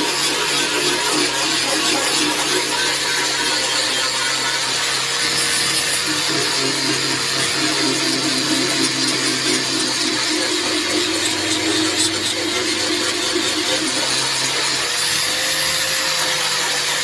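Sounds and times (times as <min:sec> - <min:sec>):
angle grinder cutting steel: 0:00.0 - 0:17.0.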